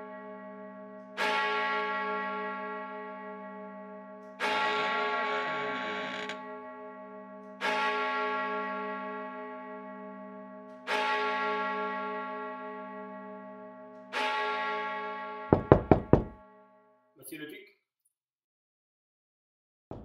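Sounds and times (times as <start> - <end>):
knocks on wooden door: 15.5 - 16.4.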